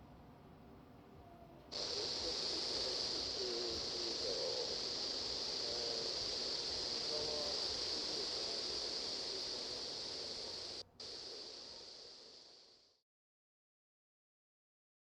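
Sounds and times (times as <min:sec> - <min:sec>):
static hiss: 0:01.7 - 0:13.0.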